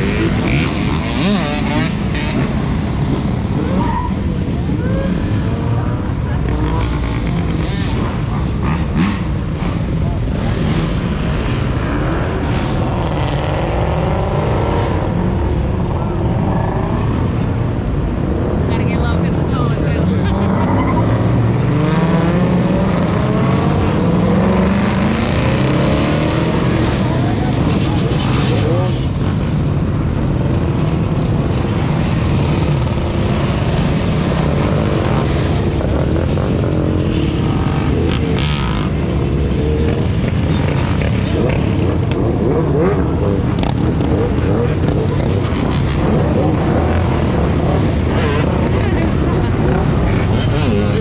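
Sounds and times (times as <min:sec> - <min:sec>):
car engine revving: 0:18.4 - 0:51.0.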